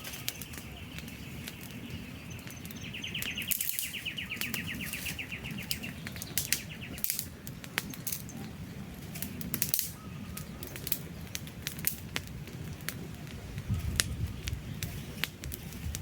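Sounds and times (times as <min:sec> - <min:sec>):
bird trilling: 0:00.0 - 0:07.1
campfire crackling and popping: 0:00.0 - 0:16.0.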